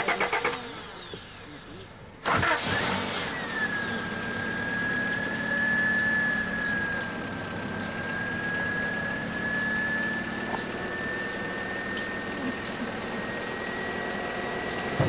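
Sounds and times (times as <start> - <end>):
car engine idling: 0.0 - 15.0
high whine: 3.1 - 15.0.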